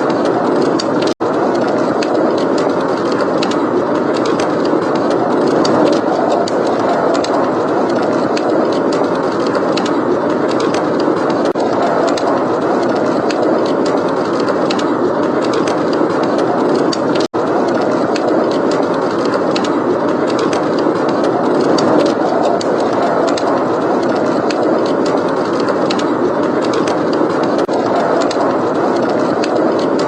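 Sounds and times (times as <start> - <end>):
heavy blizzard wind: 0.0 - 30.0
wood fire crackling: 0.0 - 30.0.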